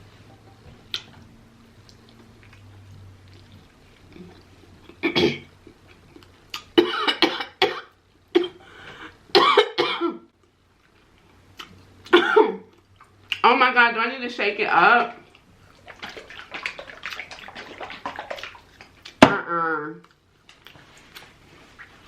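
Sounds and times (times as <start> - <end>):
person coughing: 5.0 - 5.5, 6.8 - 8.6, 9.4 - 10.2, 12.1 - 12.7.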